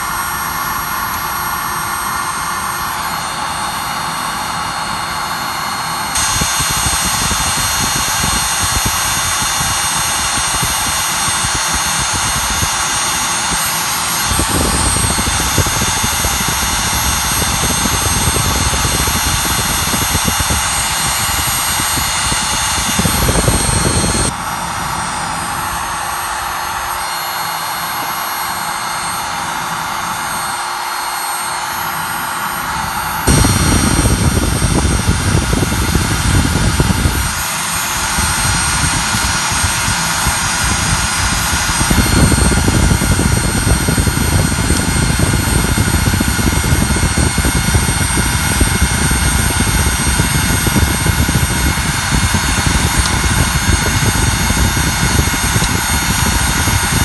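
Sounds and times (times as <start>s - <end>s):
fire burning: 0.1s - 30.7s, 31.4s - 57.0s
deeper fire rumble: 33.3s - 37.4s.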